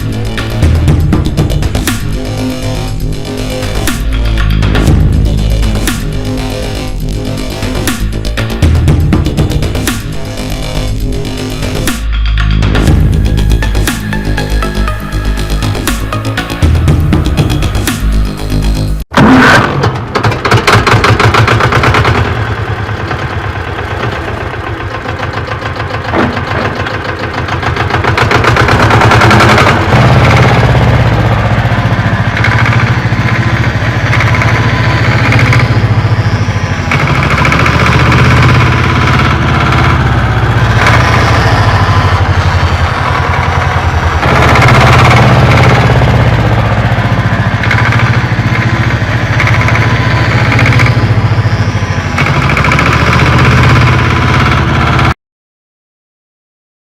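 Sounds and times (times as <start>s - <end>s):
small motor rattling: 19.3s - 55.1s.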